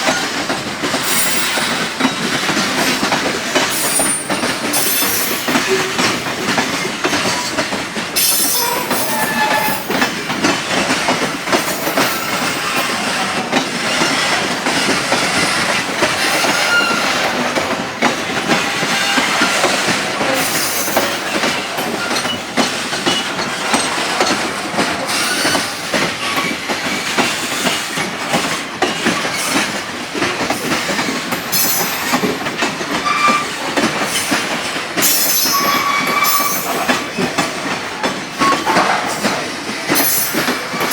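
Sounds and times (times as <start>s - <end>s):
train wheels clattering over rail joints: 0.0s - 40.9s
metallic wheel squeals: 8.2s - 10.0s, 16.4s - 17.2s, 33.0s - 33.6s, 35.2s - 36.8s.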